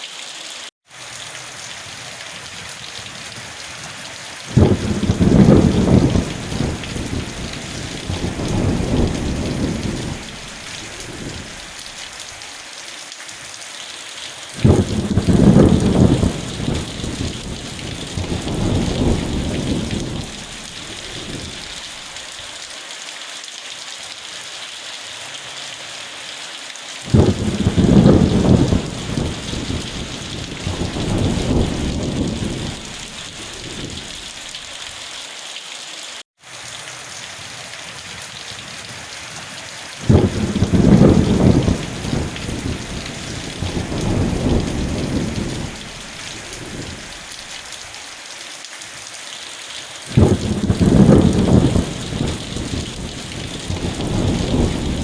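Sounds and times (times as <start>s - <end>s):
steady rain falling: 0.0s - 55.0s
thunder rumbling: 4.5s - 12.0s, 14.6s - 22.1s, 27.1s - 34.6s, 40.0s - 47.5s, 50.1s - 55.0s.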